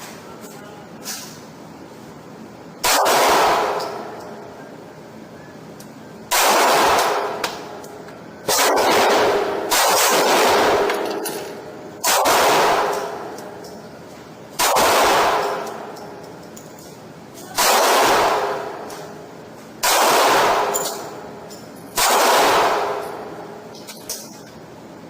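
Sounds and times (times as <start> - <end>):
pistol shots with ringing tail: 2.8 - 4.6, 6.3 - 13.9, 14.5 - 16.4, 17.6 - 24.4.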